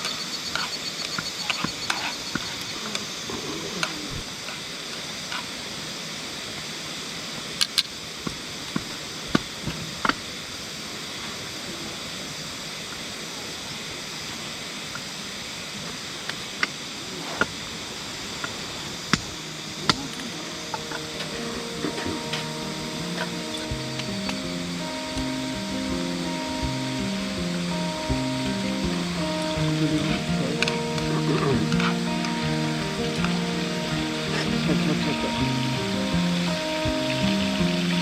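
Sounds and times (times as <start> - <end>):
river water rushing: 18.0 - 38.0.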